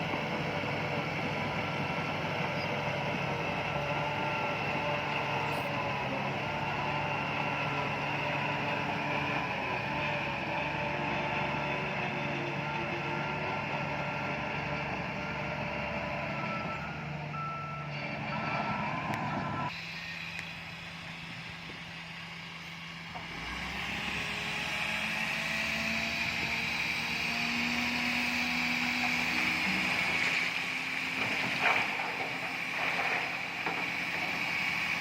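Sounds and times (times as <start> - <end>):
diesel engines of earthmovers: 0.0 - 35.0
reversing alarm beeping: 16.2 - 20.7.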